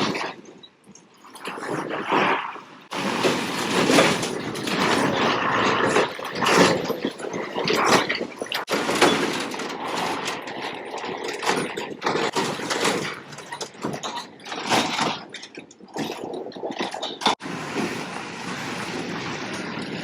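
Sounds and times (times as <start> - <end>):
heavy truck engine: 2.9 - 15.0, 17.3 - 20.0
rattling and knocking: 2.9 - 20.0.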